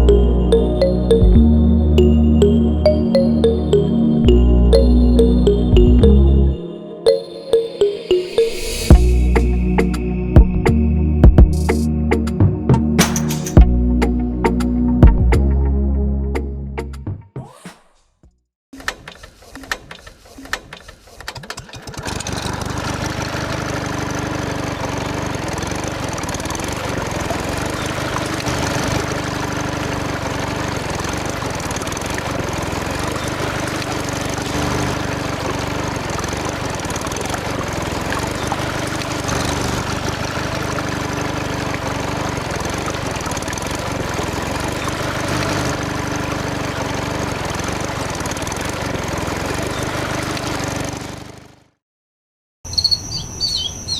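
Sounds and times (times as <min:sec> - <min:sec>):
motor running with droning tone: 0:22.0 - 0:51.7.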